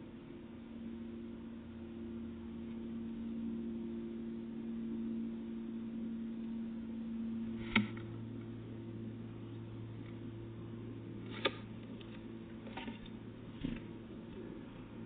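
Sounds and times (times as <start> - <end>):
low electrical hum: 0.0 - 15.0
sharp click: 7.6 - 8.1.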